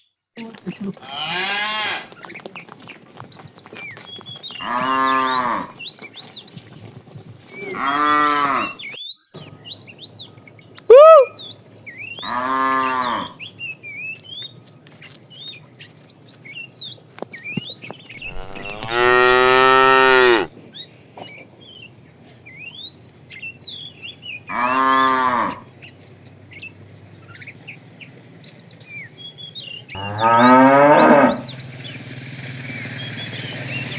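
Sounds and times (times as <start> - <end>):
cattle mooing: 1.0 - 2.2, 4.5 - 5.8, 7.6 - 8.8, 12.2 - 13.4, 18.2 - 20.5, 24.5 - 25.8, 30.0 - 31.7.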